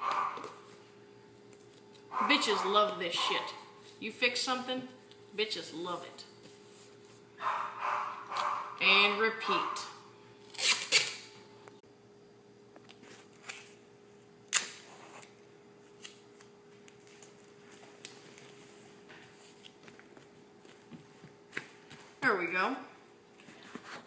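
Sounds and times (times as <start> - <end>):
faint steady hum: 0.0 - 24.0
duct tape ripping off roll: 10.4 - 11.3, 14.5 - 15.3.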